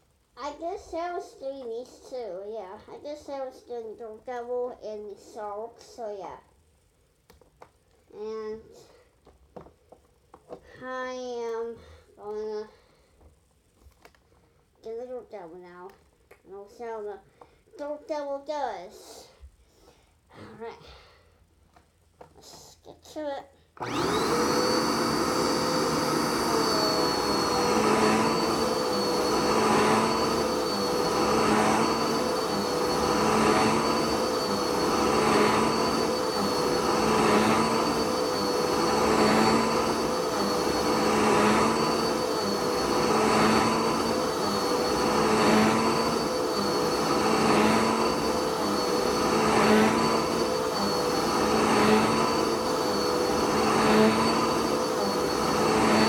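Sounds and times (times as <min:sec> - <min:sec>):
vacuum cleaner running: 0:23.8 - 0:56.0.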